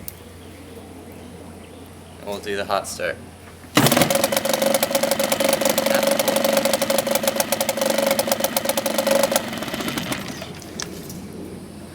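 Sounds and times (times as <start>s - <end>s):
outboard motor running: 3.8s - 10.9s.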